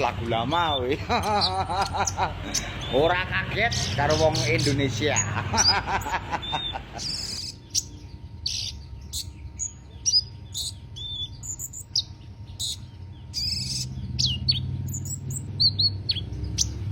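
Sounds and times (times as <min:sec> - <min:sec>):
sunbird chirping and whistling: 0:00.0 - 0:16.9.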